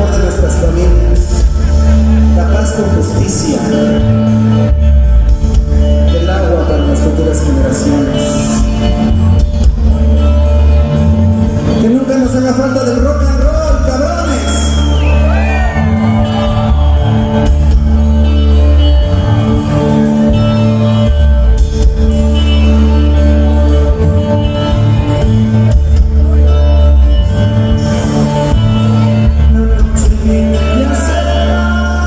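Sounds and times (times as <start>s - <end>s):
loud live band music: 0.0s - 32.0s
person singing: 29.2s - 32.0s.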